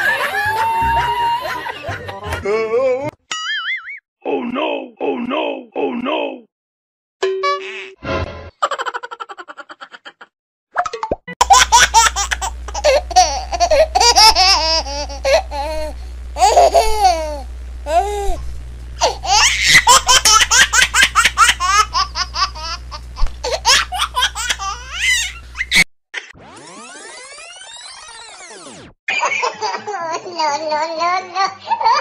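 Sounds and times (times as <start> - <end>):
childlike laughter: 0.0 - 2.0, 8.6 - 10.3, 11.4 - 18.4, 19.0 - 25.8, 29.1 - 32.0
steady low hum: 11.4 - 25.8.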